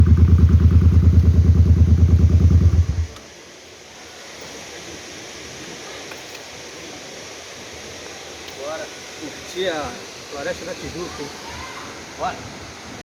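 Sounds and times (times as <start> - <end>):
motorcycle engine idling: 0.0 - 3.2
faint steady hiss: 0.0 - 13.0.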